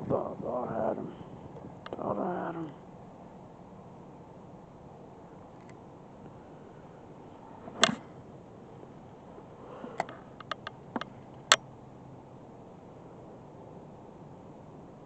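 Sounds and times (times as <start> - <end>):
sharp clicks and knocks: 10.0 - 11.6.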